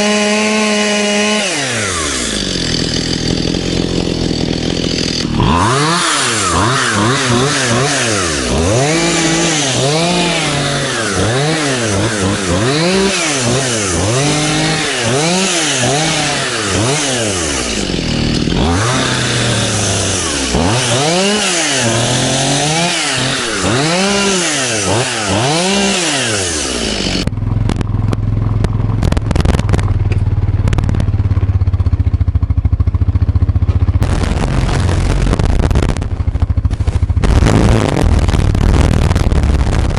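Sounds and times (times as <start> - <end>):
chainsaw revving: 0.0 - 27.3, 34.0 - 36.0, 37.2 - 39.4
low engine hum with rattling: 27.2 - 39.9.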